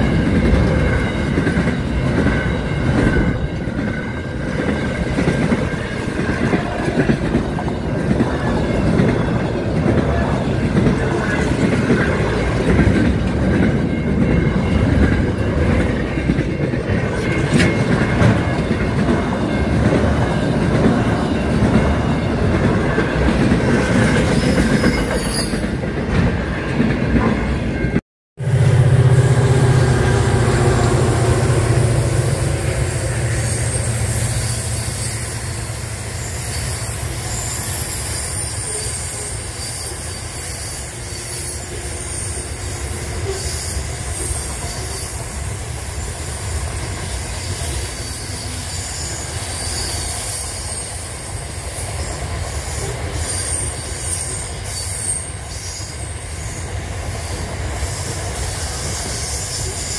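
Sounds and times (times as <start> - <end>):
high-pitched wheel squeal: 24.2 - 25.7, 29.3 - 45.2
locomotive engine drone: 27.2 - 37.3.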